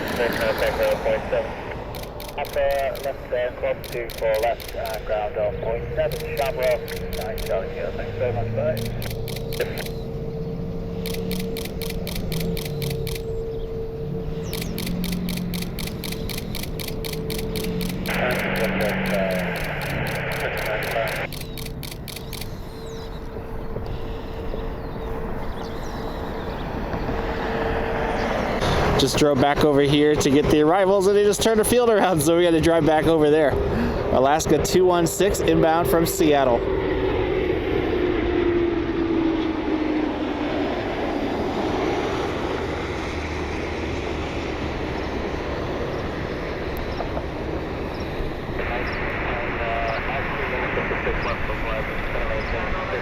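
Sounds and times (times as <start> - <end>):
steady hum: 0.0 - 29.0
car road and engine rumble: 0.0 - 53.0.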